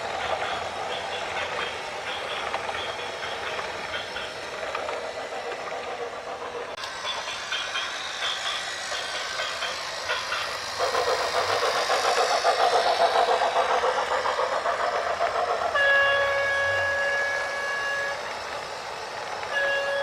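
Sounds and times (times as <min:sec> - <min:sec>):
train wheels clattering: 0:00.0 - 0:20.0
train horn: 0:15.7 - 0:18.2, 0:19.5 - 0:20.0.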